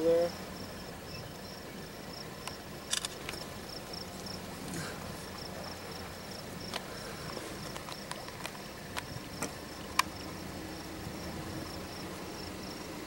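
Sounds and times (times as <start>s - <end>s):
insect chirping: 0.0s - 13.0s
sharp clicks: 2.4s - 3.5s.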